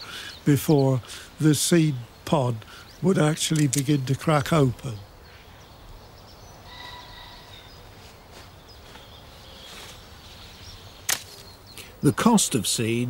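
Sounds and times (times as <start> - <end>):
faint garden ambience: 0.0 - 13.0
faint high-pitched call: 6.7 - 7.7.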